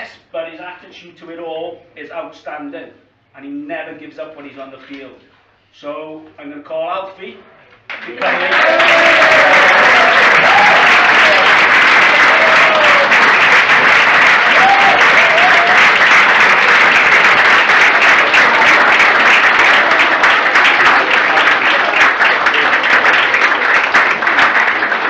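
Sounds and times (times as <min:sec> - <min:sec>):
audience applauding: 0:07.9 - 0:25.0.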